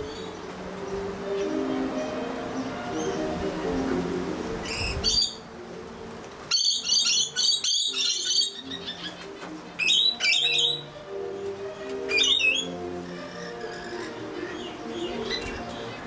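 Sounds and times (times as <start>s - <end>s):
low steady tones: 0.0s - 6.5s
songbirds chirping: 0.0s - 16.0s.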